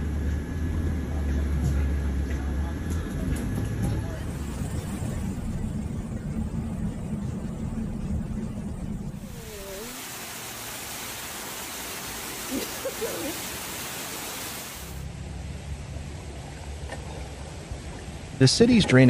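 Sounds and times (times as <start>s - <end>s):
low rumble: 3.7s - 10.8s
rushing hiss of water: 9.2s - 15.1s.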